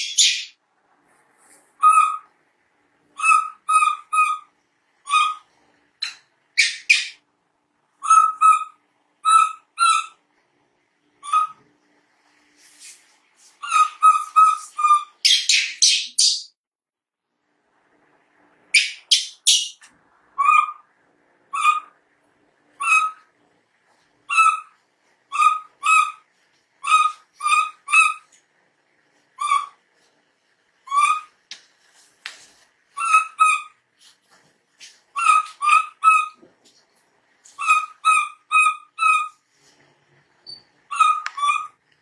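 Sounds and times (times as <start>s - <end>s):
baby monkey crying: 24.3s - 24.7s, 26.8s - 28.3s, 29.4s - 29.8s, 30.9s - 31.4s, 33.0s - 33.8s, 35.2s - 36.4s, 37.6s - 39.3s, 40.9s - 41.8s.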